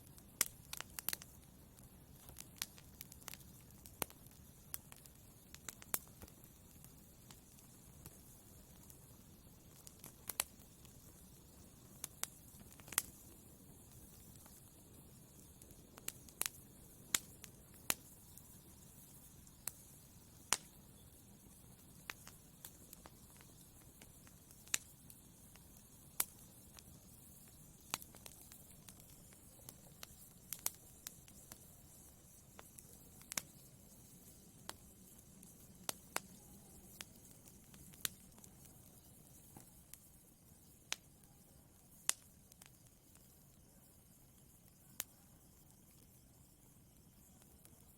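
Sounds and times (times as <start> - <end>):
faint fire hiss: 0.0 - 47.9
wood fire crackling and popping: 0.0 - 47.9.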